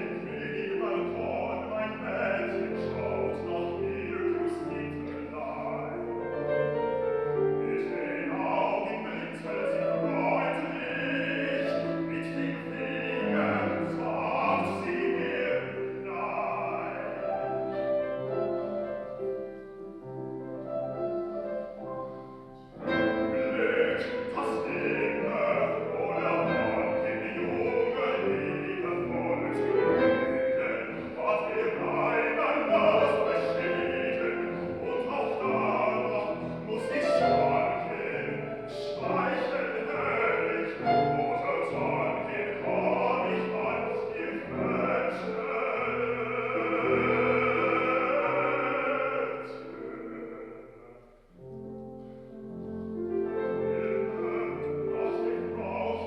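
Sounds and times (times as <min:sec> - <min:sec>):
baritone singing: 0:00.0 - 0:56.0
piano accompaniment: 0:00.0 - 0:56.0.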